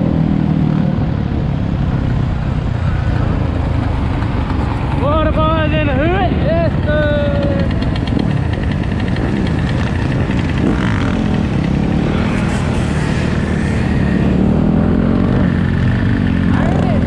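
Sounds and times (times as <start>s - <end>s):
dirt bike and quad engines revving: 0.0s - 17.0s.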